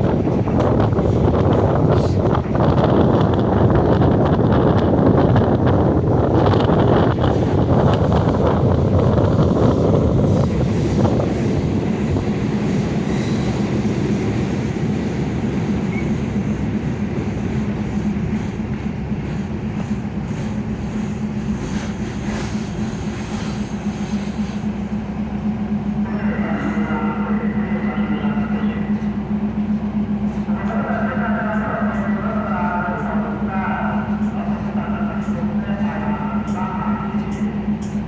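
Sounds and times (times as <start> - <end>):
train running on rails: 0.0 - 38.0
steady low hum: 13.7 - 38.0.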